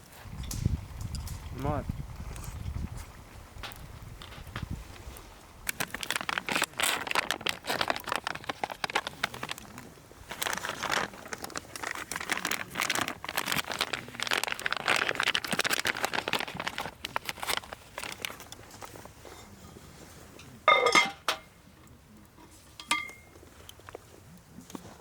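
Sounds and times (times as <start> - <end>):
crackling and rustling: 0.0 - 25.0
ringing clink: 22.8 - 23.3.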